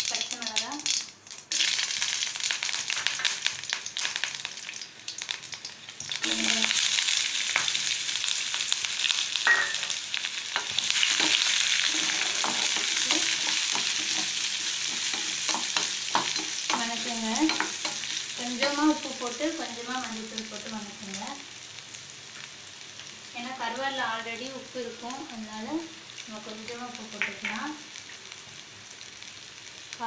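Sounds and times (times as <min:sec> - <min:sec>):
onions sizzling in hot oil: 0:00.0 - 0:30.0
wooden spatula scraping a pan: 0:10.6 - 0:16.8.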